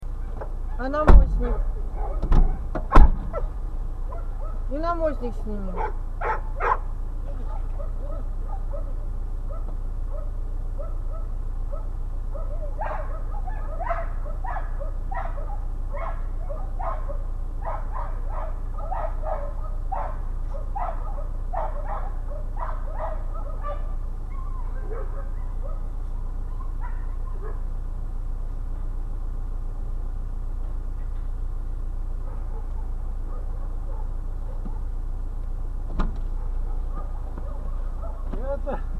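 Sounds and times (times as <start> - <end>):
steady low hum: 0.0 - 38.9
dog barking: 1.5 - 4.7, 5.8 - 27.7, 32.2 - 35.0, 36.3 - 38.5.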